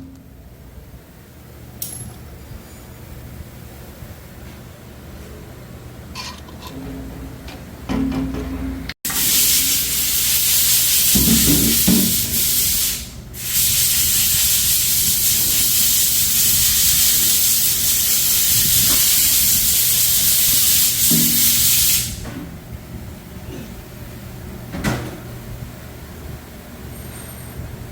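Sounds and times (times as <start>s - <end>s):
loud spraying hiss: 9.1s - 22.2s.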